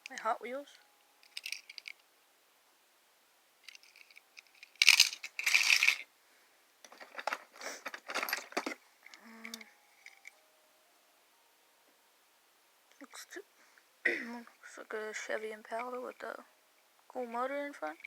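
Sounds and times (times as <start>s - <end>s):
metal toy cars clinking: 1.2s - 2.0s, 3.6s - 6.1s, 6.9s - 10.4s.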